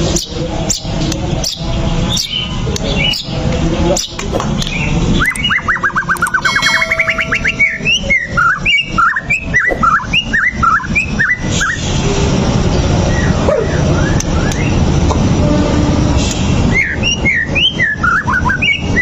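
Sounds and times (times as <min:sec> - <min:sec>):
bird singing whistles: 0:05.2 - 0:11.8, 0:13.1 - 0:14.8, 0:16.7 - 0:19.0.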